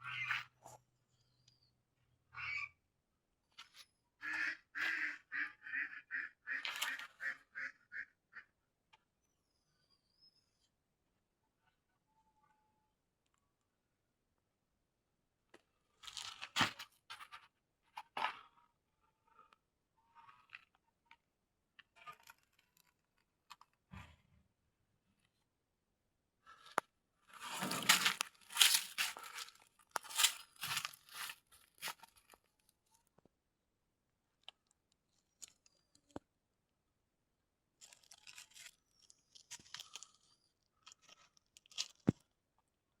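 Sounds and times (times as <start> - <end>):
rustling and crunching: 26.6 - 32.5, 37.8 - 42.2
scraping: 27.4 - 31.3.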